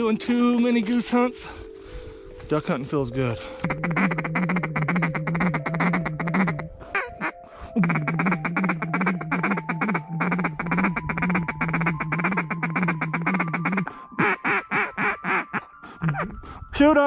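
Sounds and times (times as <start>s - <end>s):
duck quacking rapidly: 3.6s - 16.2s.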